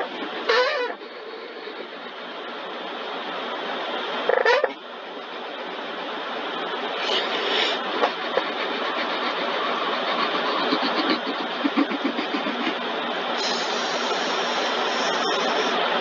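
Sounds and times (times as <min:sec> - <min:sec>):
car wash machinery rushing: 0:05.4 - 0:16.0
water spray: 0:13.4 - 0:15.9.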